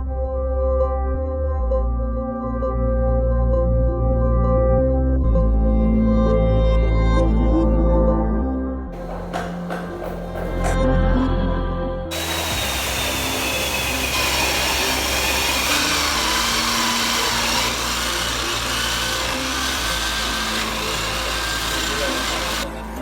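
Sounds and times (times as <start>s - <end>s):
power tool cutting wood: 9.0s - 10.8s, 12.1s - 23.0s.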